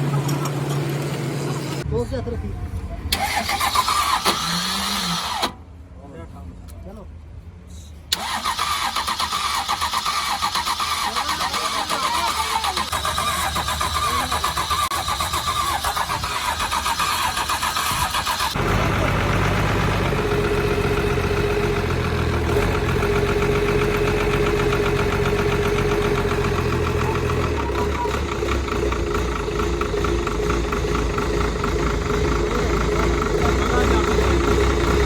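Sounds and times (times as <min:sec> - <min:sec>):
diesel engine running: 0:08.1 - 0:35.0.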